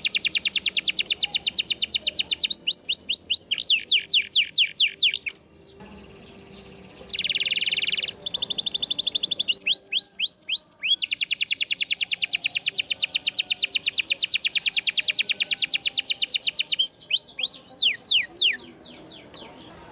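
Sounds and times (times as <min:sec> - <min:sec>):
canary singing: 0:00.0 - 0:19.9.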